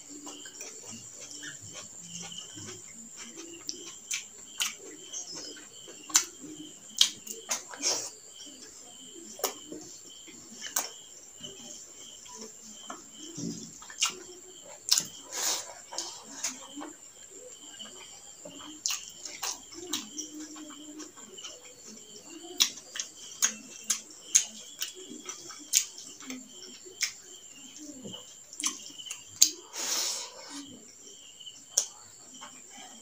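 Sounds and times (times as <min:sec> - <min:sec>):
wet chewing: 0:00.0 - 0:08.2, 0:10.6 - 0:29.7
crickets trilling: 0:00.0 - 0:33.0
lip smacks: 0:28.5 - 0:29.6.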